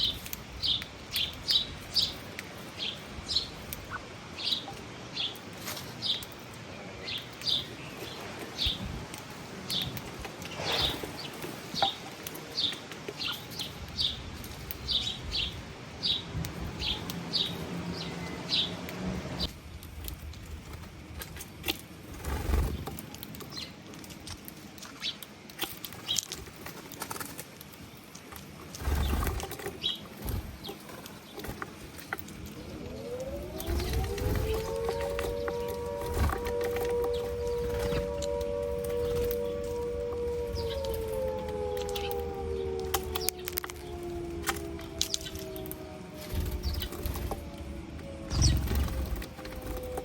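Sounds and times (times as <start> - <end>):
wing flutters: 20.0 - 23.7, 25.6 - 47.6, 48.2 - 50.0.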